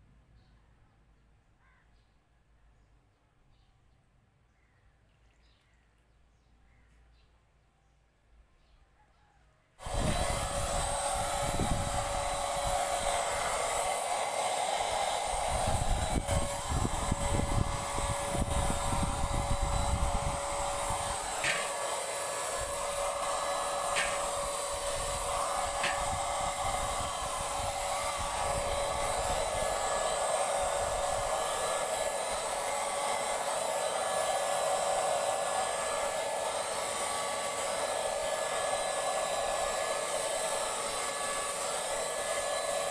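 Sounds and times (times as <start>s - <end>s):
electric paint sprayer running: 9.8s - 42.9s.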